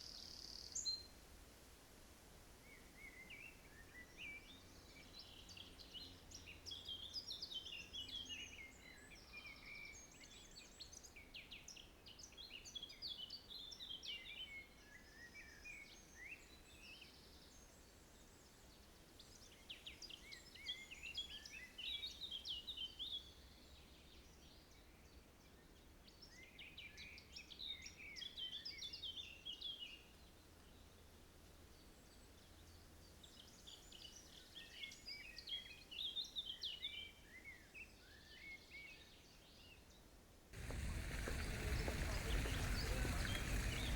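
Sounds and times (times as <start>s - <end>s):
faint low rumble: 40.6s - 43.9s
songbird singing: 40.6s - 43.9s.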